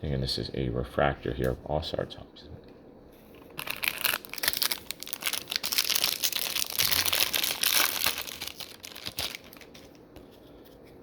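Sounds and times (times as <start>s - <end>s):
foil wrapper tearing and crinkling: 3.5s - 10.0s.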